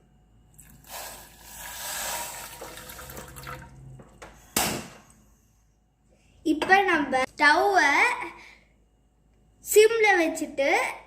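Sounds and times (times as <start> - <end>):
water pouring into a bowl: 0.6 - 3.8.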